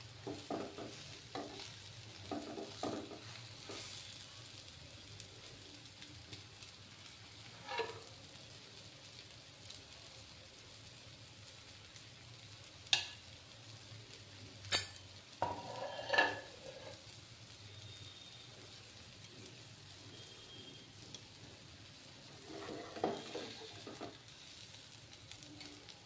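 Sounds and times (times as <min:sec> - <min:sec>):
pancakes sizzling in oil: 0:00.0 - 0:26.0
metal spatula scraping pan: 0:07.5 - 0:08.1, 0:14.7 - 0:17.0, 0:22.3 - 0:24.2.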